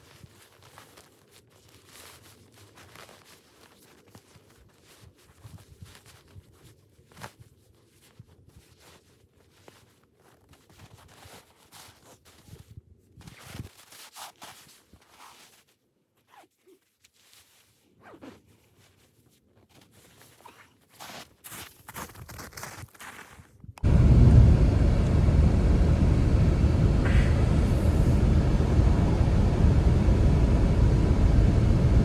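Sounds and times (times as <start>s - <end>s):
zipper rasping: 18.0s - 18.8s.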